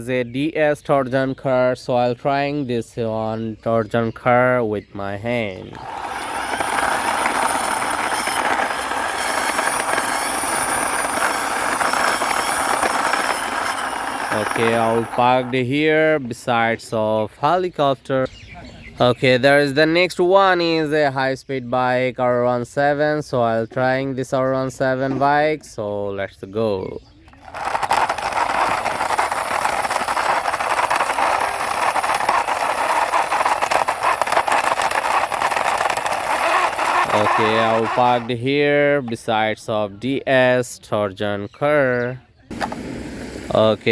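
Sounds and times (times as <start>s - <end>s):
toy truck wheels rolling: 3.9s - 16.8s, 26.6s - 39.6s.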